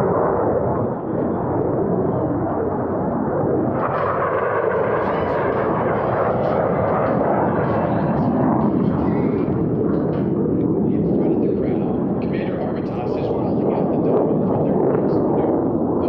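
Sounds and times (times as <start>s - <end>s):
jet roar: 0.0s - 16.0s.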